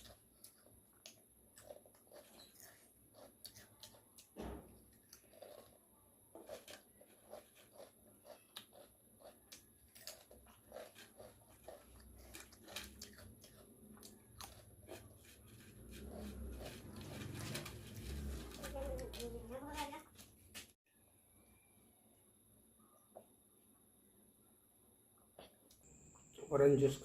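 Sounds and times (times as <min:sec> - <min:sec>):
potato chips being chewed: 0:00.0 - 0:19.5.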